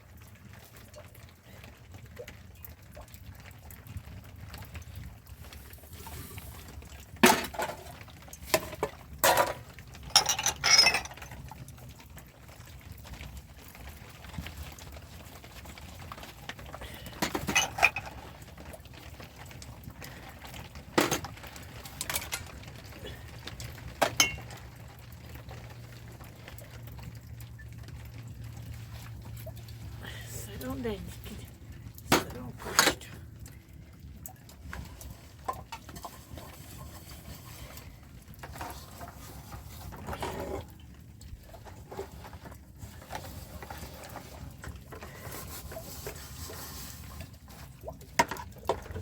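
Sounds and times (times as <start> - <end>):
water sounds: 0.0 - 49.0
dishes and pots clinking: 7.2 - 11.5, 17.2 - 18.2, 21.0 - 21.4, 22.0 - 22.5, 24.0 - 24.6.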